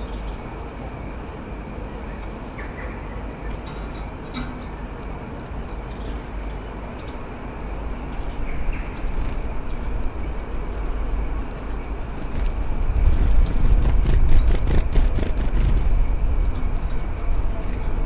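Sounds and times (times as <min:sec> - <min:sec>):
faint small-bird calls: 0:02.0 - 0:03.7, 0:05.6 - 0:07.3
light ticks: 0:03.4 - 0:12.7.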